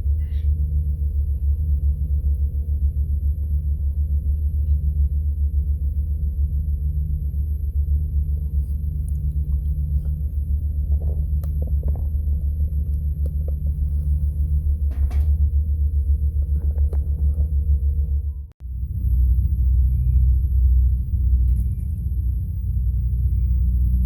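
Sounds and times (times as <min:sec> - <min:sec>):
steady low engine rumble: 0:00.0 - 0:24.0
faint knocks and clicks: 0:09.1 - 0:14.0.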